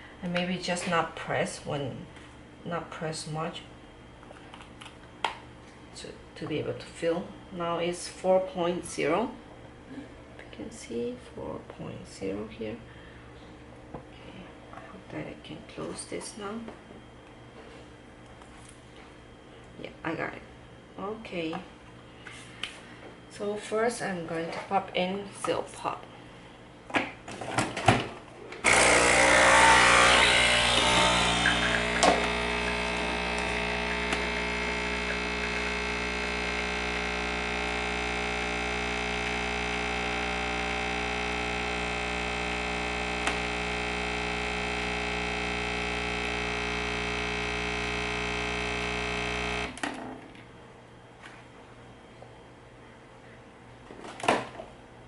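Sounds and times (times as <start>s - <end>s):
coffee machine pump humming: 28.6s - 49.8s.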